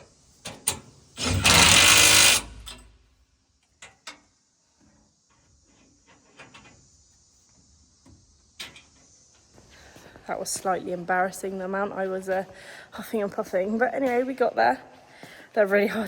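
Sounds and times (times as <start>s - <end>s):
impact wrench hammering: 1.2s - 2.9s.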